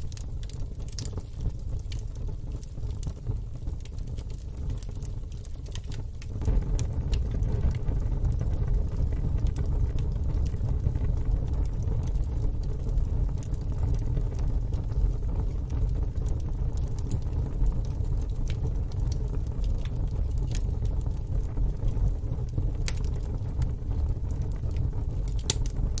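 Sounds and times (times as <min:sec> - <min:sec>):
fire pops: 0:00.0 - 0:26.0
wood fire crackling: 0:00.0 - 0:26.0
steady low rumble: 0:06.1 - 0:26.0.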